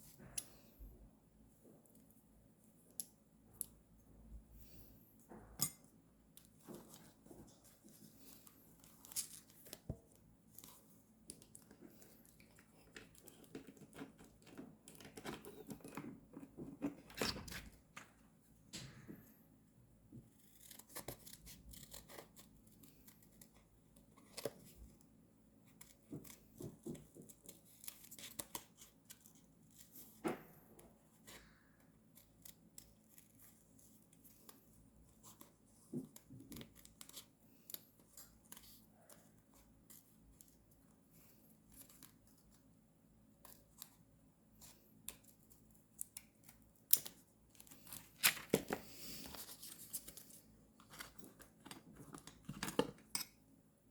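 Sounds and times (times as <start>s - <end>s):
scissors cutting paper: 20.3s - 24.7s.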